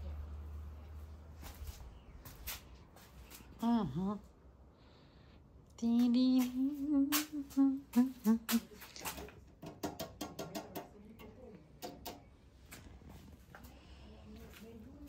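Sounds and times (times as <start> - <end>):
person humming a drawn-out vowel: 5.8 - 8.8
short vocal sounds: 5.8 - 9.0
sharp clicks and knocks: 8.5 - 12.3.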